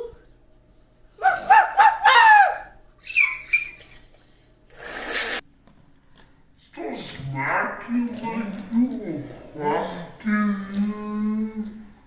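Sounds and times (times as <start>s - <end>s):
child yelping playfully: 1.2s - 3.8s
child squeaking: 1.2s - 4.0s
breathy hiss: 4.4s - 5.4s.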